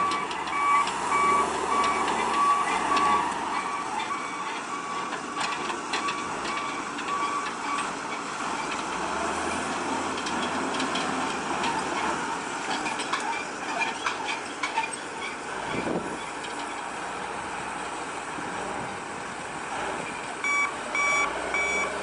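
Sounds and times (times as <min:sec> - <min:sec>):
reversing alarm beeping: 0:00.0 - 0:05.1, 0:20.4 - 0:22.0.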